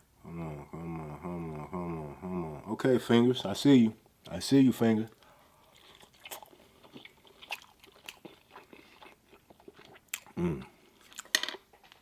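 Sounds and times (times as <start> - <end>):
low hum of approval: 0.2 - 2.8
person chewing food: 5.1 - 12.0.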